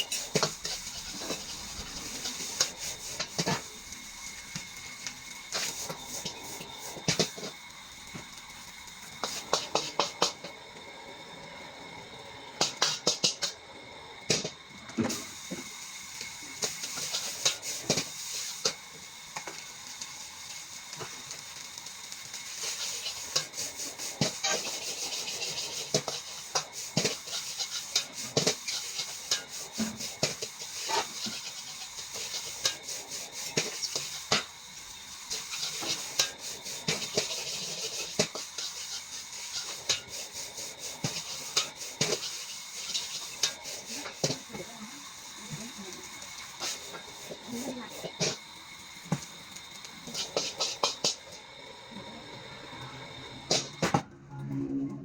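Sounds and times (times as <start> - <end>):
metal spatula scraping pan: 0.0 - 4.4, 22.5 - 34.5, 35.3 - 44.5, 50.0 - 51.2
rice sizzling in a wok: 0.0 - 54.0.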